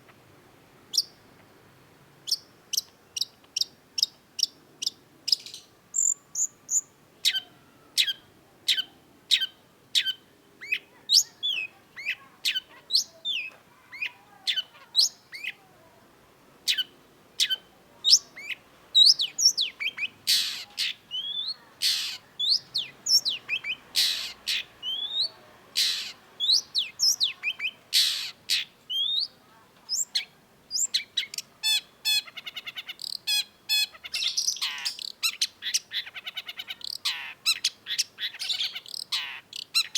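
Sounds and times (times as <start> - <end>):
shrike singing chips and whistles: 2.3 - 11.7, 16.7 - 36.1.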